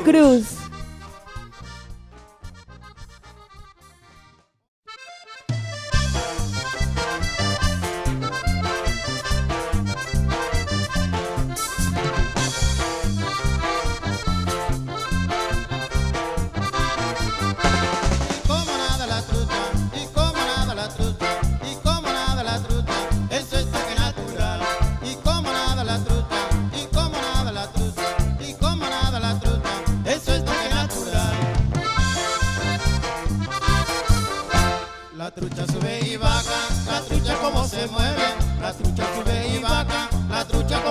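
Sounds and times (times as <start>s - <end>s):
accordion-led band music: 0.0s - 40.9s
bouncing bass beat: 6.0s - 34.8s, 36.2s - 40.9s.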